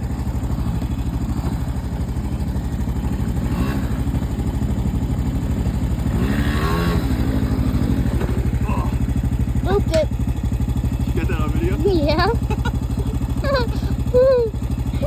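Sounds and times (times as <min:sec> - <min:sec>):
small engine fast putter: 0:00.0 - 0:15.0.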